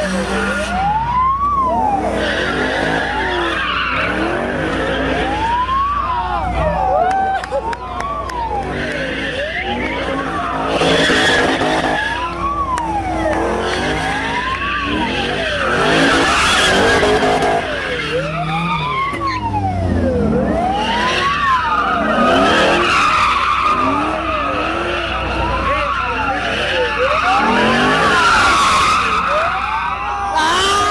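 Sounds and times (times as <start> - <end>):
car engine revving: 0.0 - 6.8, 7.6 - 30.9
police siren wailing: 0.0 - 30.9
tyres screeching: 1.9 - 5.8, 20.7 - 30.9.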